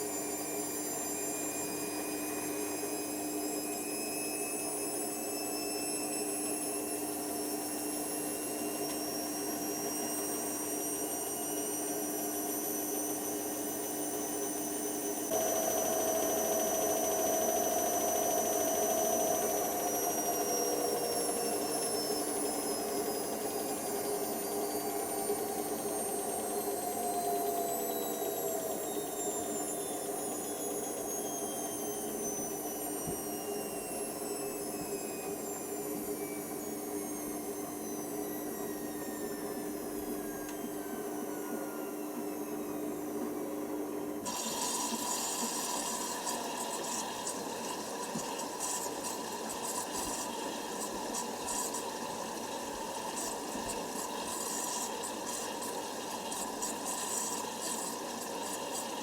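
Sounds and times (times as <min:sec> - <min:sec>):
washer drum motor whining down: 0:00.0 - 0:59.0
water rushing through machine: 0:15.3 - 0:37.2, 0:44.2 - 0:59.0.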